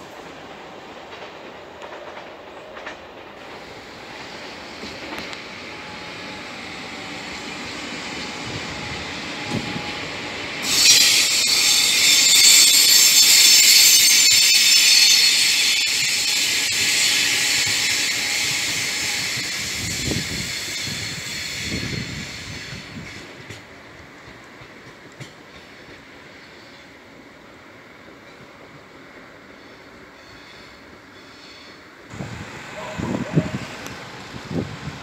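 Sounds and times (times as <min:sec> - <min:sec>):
electric train rumbling: 0:00.0 - 0:35.0
high-pitched hissing squeal: 0:03.6 - 0:23.3.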